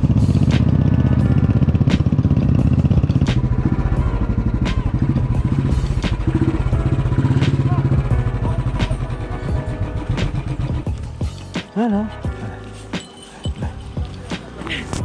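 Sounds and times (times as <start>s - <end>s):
vehicle engine running: 0.0s - 11.6s.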